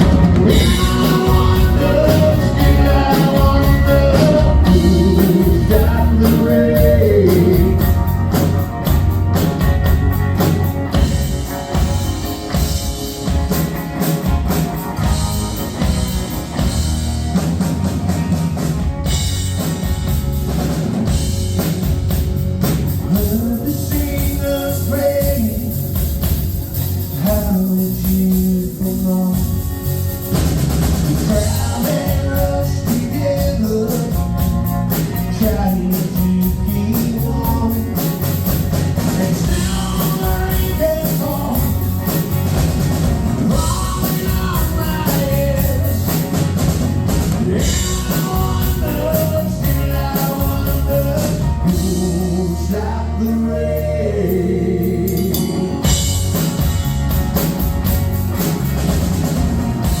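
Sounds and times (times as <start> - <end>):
person singing: 0.0 - 9.0, 23.0 - 26.2, 31.1 - 42.2, 43.4 - 46.5, 47.3 - 56.1
rock band playing live: 0.0 - 60.0.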